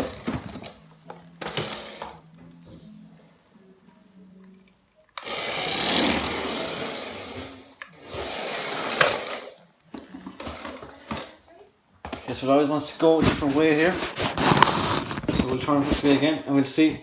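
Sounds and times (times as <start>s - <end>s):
toy car motor whirring: 5.2s - 9.6s.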